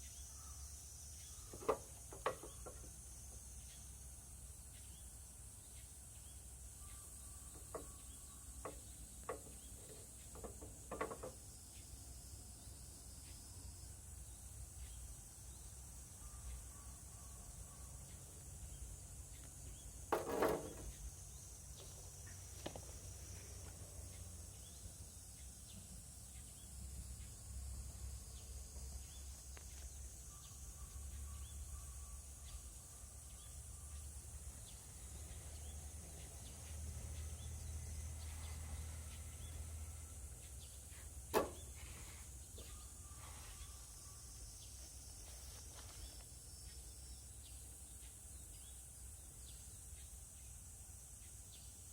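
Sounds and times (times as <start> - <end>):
high insect drone: 0.0 - 51.9
short sharp knocks: 41.3 - 41.7.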